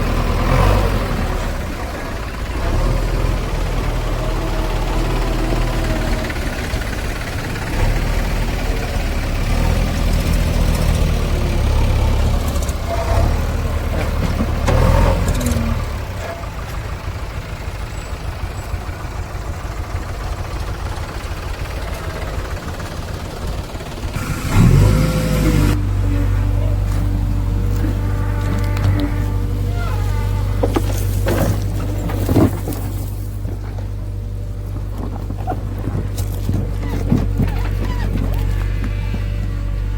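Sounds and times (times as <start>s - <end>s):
heavy diesel engine working: 0.0s - 39.9s
metal clatters: 26.8s - 39.9s.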